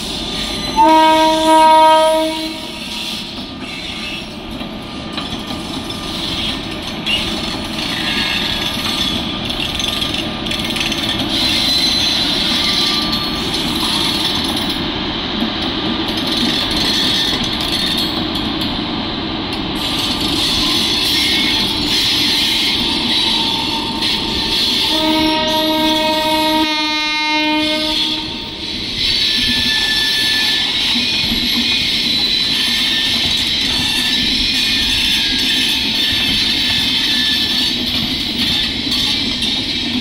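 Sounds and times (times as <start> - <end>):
train passing on rails: 0.0 - 40.0
locomotive horn: 0.8 - 3.0, 24.9 - 28.6.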